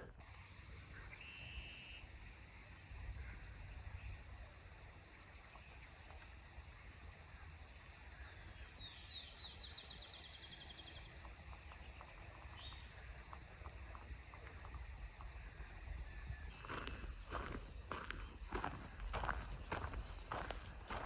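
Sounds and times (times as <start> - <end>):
low steady rumble: 0.0 - 21.0
faint songbird trill: 0.9 - 2.1, 8.1 - 13.0.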